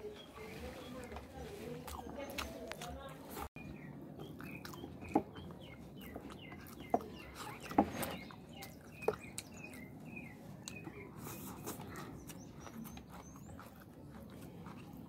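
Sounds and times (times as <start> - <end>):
small birds chirping: 0.0 - 15.0
wet mouth smacks and chewing: 4.2 - 7.6, 10.6 - 15.0.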